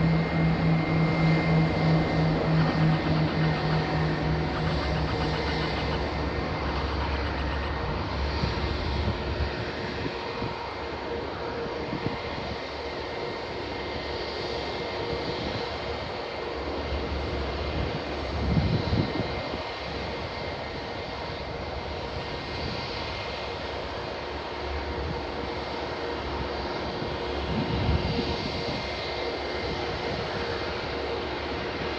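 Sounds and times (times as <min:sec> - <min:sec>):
low rumbles: 0:00.0 - 0:10.8
turboprop engines running: 0:00.0 - 0:31.9.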